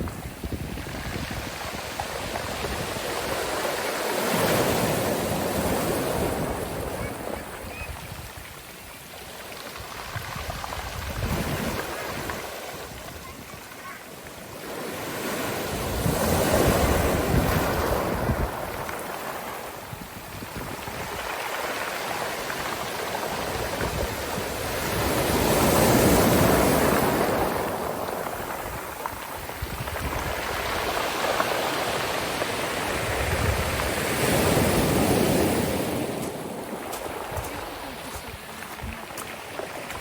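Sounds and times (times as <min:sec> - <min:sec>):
sea waves washing onto shore: 0:00.0 - 0:40.0.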